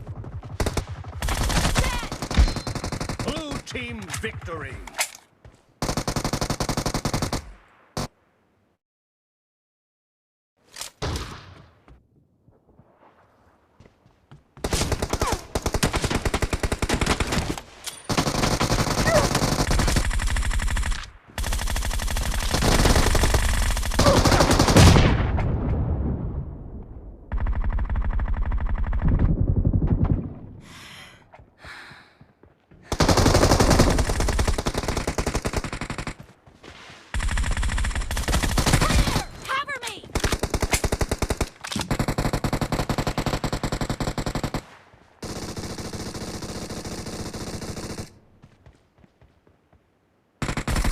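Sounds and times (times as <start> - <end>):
rapid automatic gunfire: 0.0 - 3.6, 5.8 - 7.4, 14.7 - 17.5, 18.1 - 25.0, 27.3 - 30.0, 32.9 - 36.2, 37.2 - 39.2, 40.2 - 48.2, 50.4 - 50.9.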